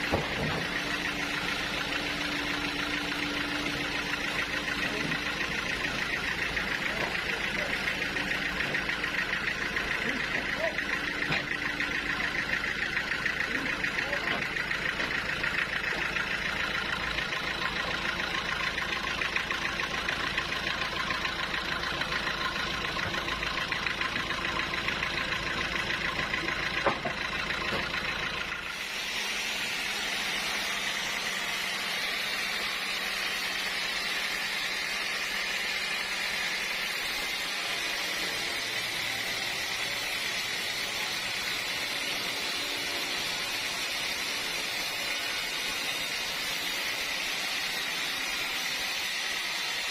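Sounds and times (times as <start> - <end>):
sawmill machinery hum: 0.0 - 49.9.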